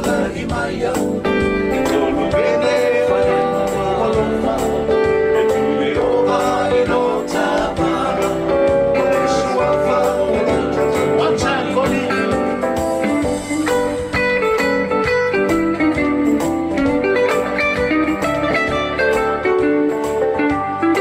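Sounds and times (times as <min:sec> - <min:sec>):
person singing: 0:00.0 - 0:13.3
strummed guitar: 0:00.0 - 0:21.0.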